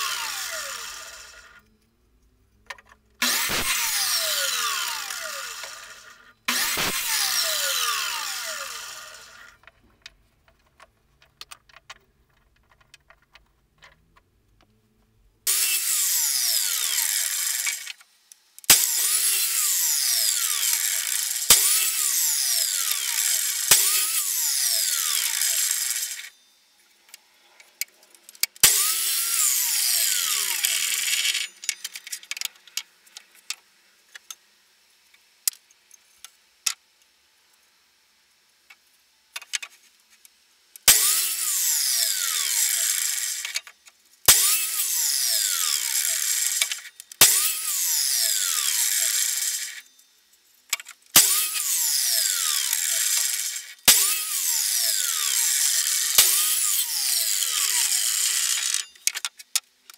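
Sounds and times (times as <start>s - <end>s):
mitre saw cutting wood: 0.0s - 1.6s, 3.2s - 9.6s, 15.5s - 18.0s, 18.7s - 26.3s, 28.6s - 31.6s, 40.9s - 43.7s, 44.3s - 49.8s, 51.2s - 59.0s.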